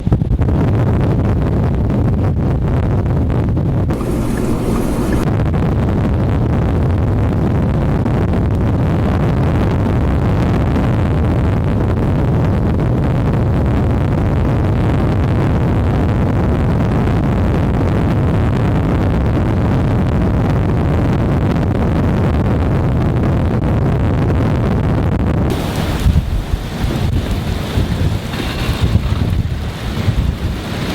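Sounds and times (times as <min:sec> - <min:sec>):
wind buffeting microphone: 0:03.9 - 0:05.3, 0:25.5 - 0:30.9.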